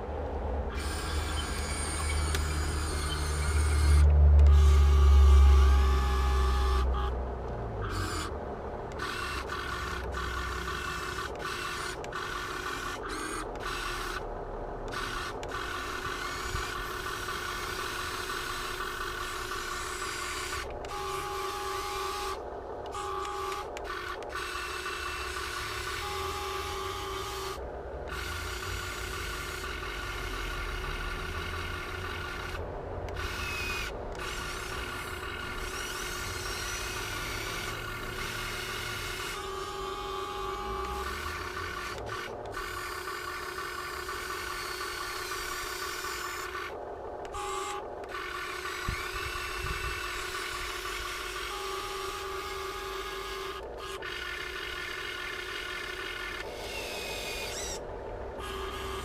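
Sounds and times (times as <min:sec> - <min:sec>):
electric motors whining: 0:00.0 - 0:59.0.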